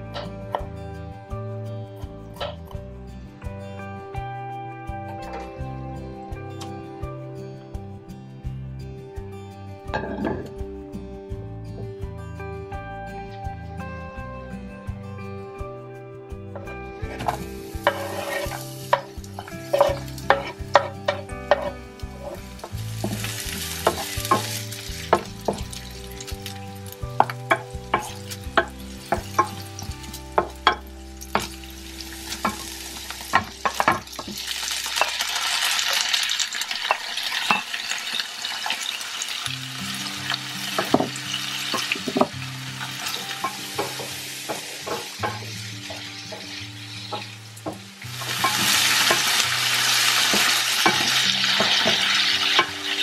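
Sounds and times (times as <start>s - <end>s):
soft background music: 0.0s - 53.0s
food sizzling in a frying pan: 17.0s - 53.0s
wooden spatula tapping and scraping: 17.1s - 25.8s.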